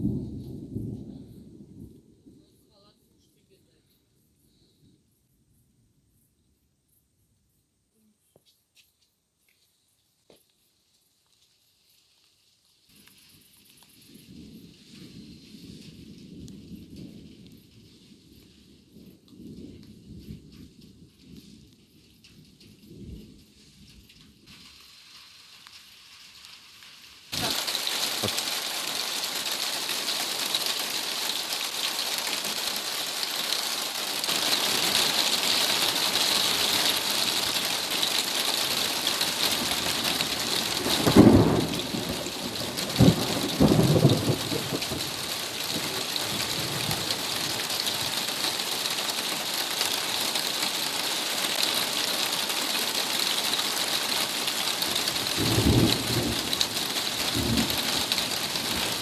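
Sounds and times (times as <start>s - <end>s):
heavy rain pouring: 24.6s - 59.0s
thunder cracks: 27.3s - 30.8s, 38.6s - 48.4s, 54.7s - 59.0s.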